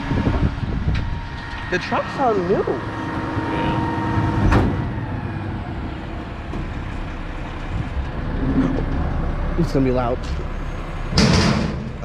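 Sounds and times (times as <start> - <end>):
faint whine: 0.0 - 12.0
garbage truck diesel rumble: 0.0 - 12.0
sharp metallic clank: 11.0 - 12.0.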